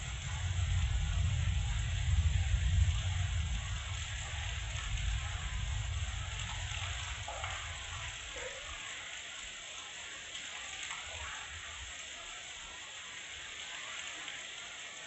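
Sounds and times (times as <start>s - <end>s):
low rumble: 0.0s - 7.3s
heavy rain hissing: 0.0s - 15.0s.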